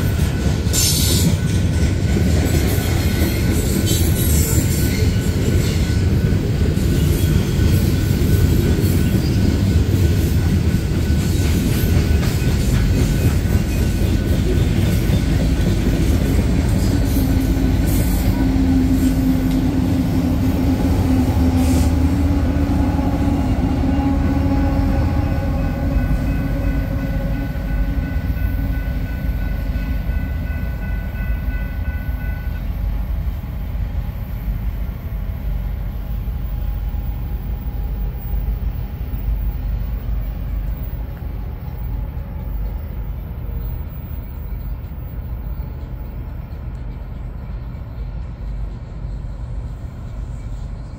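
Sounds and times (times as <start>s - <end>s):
crossing warning bell ringing: 0.0s - 33.4s
train rumbling past on rails: 0.0s - 50.9s.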